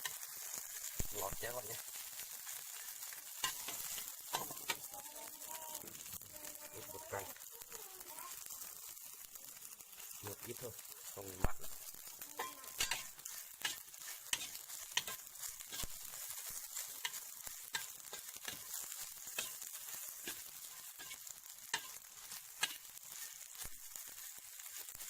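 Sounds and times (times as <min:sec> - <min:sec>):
insects sizzling in a pan: 0:00.0 - 0:25.0
utensil scraping a pan: 0:03.4 - 0:04.9, 0:12.3 - 0:23.6.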